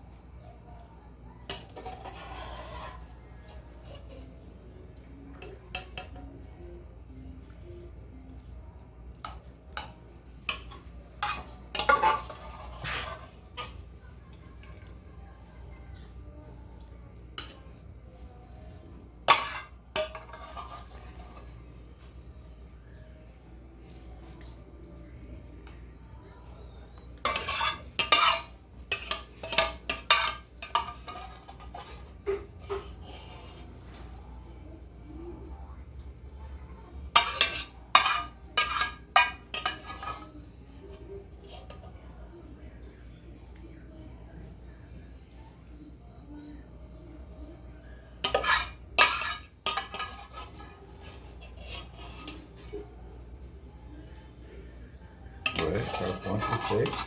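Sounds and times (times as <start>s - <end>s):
utensils and dishes clattering: 0.7s - 6.5s, 9.1s - 16.3s, 19.2s - 22.7s, 26.6s - 34.2s, 37.0s - 42.0s, 48.1s - 53.0s, 55.4s - 57.0s.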